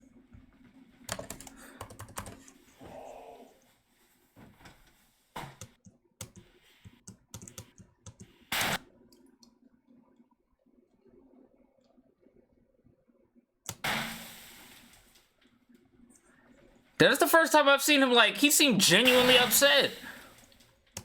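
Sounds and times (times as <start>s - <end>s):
computer keyboard typing: 1.1s - 2.6s, 5.6s - 8.4s
loud burst of noise: 13.8s - 14.8s, 18.9s - 20.3s.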